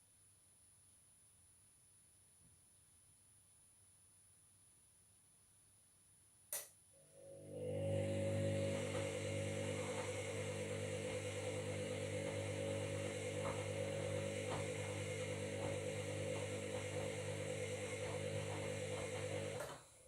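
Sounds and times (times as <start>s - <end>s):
washing machine motor hum: 7.0s - 20.0s.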